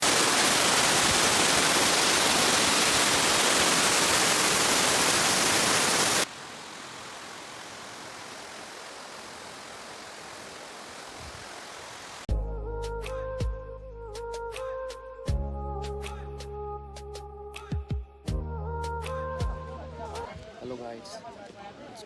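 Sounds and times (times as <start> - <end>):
waterfall roaring: 0.0 - 12.3.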